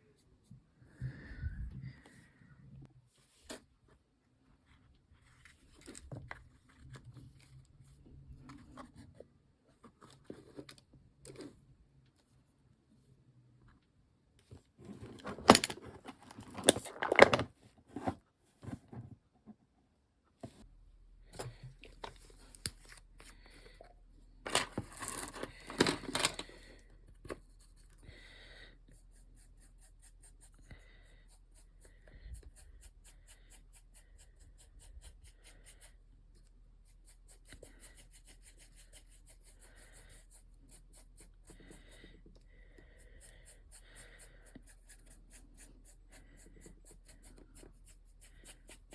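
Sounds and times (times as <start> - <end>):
small hard objects clattering: 24.5 - 26.5
paintbrush strokes: 27.4 - 48.9.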